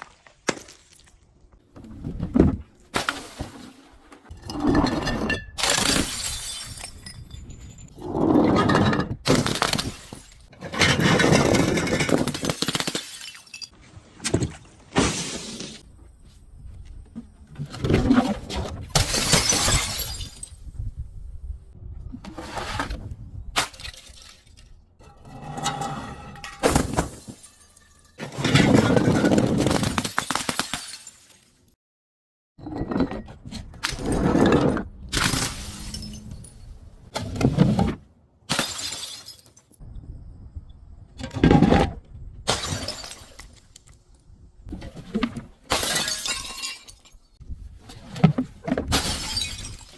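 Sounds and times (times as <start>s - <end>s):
glass bottles being crushed: 4.5s - 7.9s, 9.4s - 13.7s, 19.0s - 20.6s, 38.5s - 39.8s, 45.7s - 47.4s, 48.9s - 49.9s.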